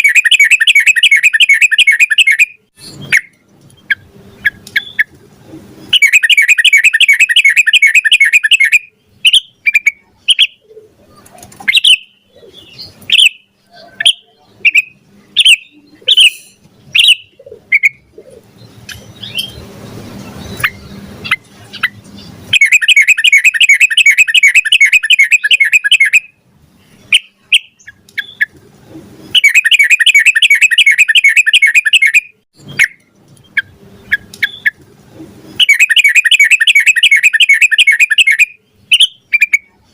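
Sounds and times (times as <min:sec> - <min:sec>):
bird chirps: 0:00.0 - 0:28.6, 0:29.2 - 0:34.8, 0:35.5 - 0:39.9
bird singing fast repeated notes: 0:00.0 - 0:34.8, 0:35.4 - 0:39.9.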